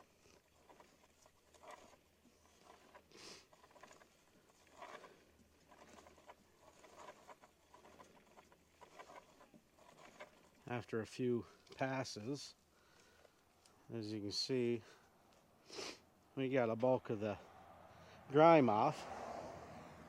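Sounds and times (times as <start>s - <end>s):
drive chain clicking: 0.6s - 10.6s.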